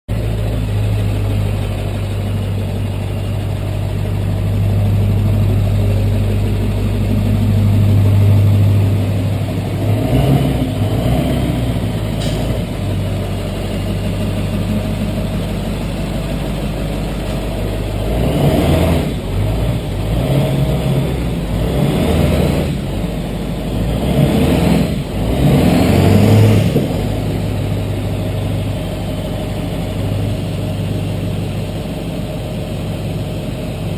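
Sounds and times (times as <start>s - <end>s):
truck engine idling and revving: 0.1s - 33.9s.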